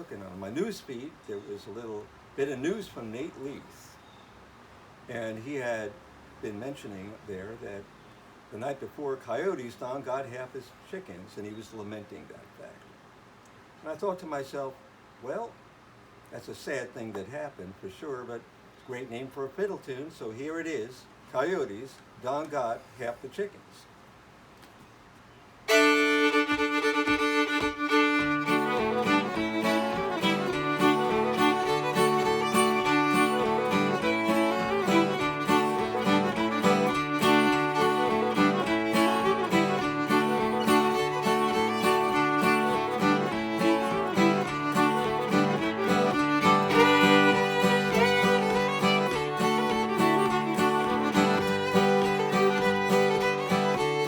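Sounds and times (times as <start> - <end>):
lively fiddle tune: 25.7 - 54.0
strummed acoustic guitar: 25.7 - 54.0.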